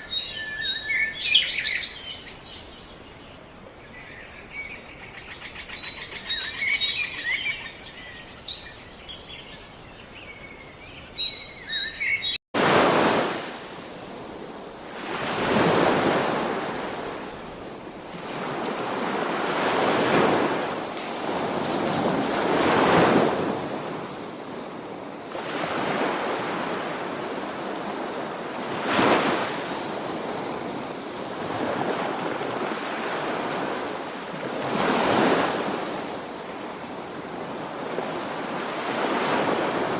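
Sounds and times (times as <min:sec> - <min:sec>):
sea waves washing ashore: 0:12.6 - 0:39.9.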